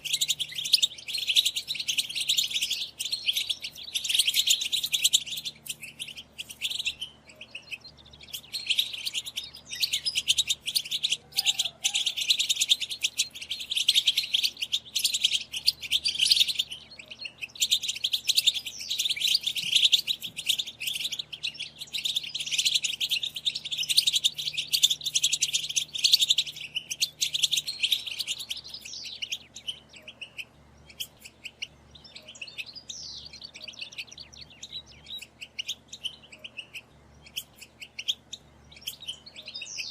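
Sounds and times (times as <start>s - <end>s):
finches chattering and twittering: 0.0s - 39.9s.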